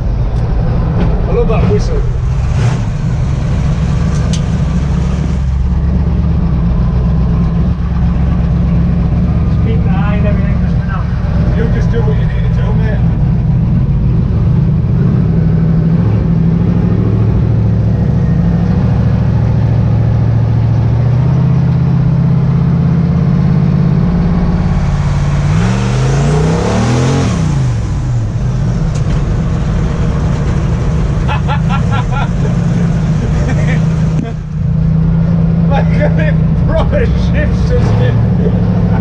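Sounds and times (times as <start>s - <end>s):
drag car engine accelerating: 0.0s - 39.0s.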